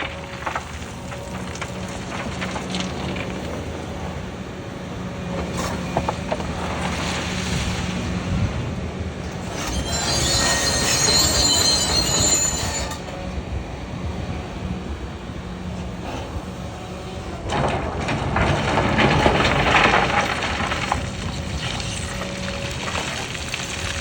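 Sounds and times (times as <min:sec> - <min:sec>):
excavator diesel engine running: 0:00.0 - 0:24.0
rushing scraping: 0:09.3 - 0:13.2, 0:17.2 - 0:24.0
metallic squealing and grinding: 0:09.4 - 0:13.4, 0:18.5 - 0:24.0.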